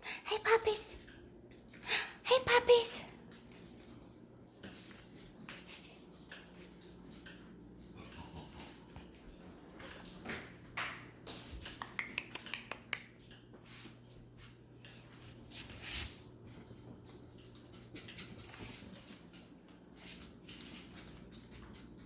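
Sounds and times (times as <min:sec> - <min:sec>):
puppies playing with rustles: 0:02.4 - 0:22.0
sharp clicks and taps: 0:10.8 - 0:13.1.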